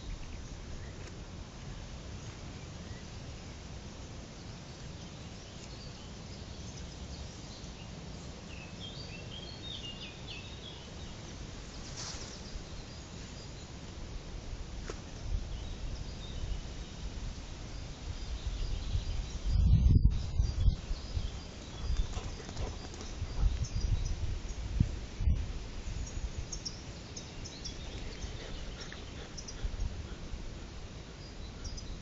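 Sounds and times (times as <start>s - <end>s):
faint bird chirps: 25.9s - 32.0s.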